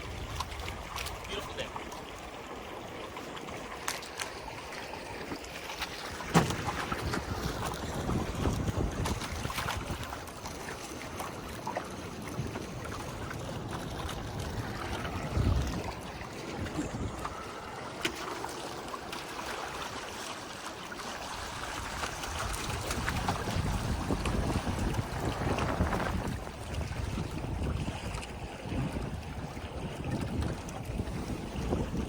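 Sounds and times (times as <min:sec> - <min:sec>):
water rushing along hull: 0:00.0 - 0:32.0
wind on microphone: 0:06.1 - 0:10.7, 0:12.1 - 0:18.0, 0:21.4 - 0:32.0.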